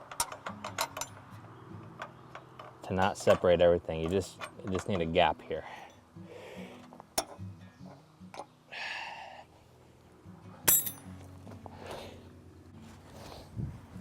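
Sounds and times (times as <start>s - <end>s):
ringing metal-on-metal clink: 10.7s - 11.1s.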